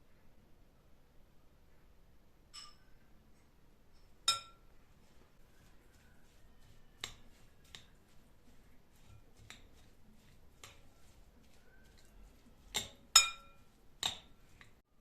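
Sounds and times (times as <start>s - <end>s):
sharp ringing clink: 2.6s - 3.0s.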